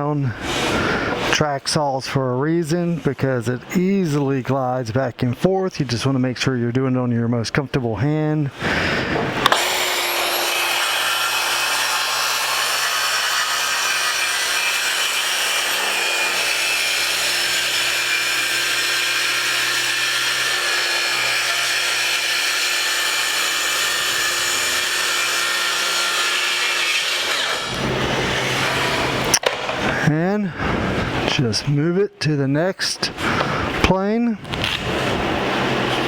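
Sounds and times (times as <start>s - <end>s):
person speaking: 1.3s - 8.6s, 29.8s - 30.6s, 31.2s - 34.4s
track saw cutting wood: 8.6s - 30.0s, 34.5s - 36.0s.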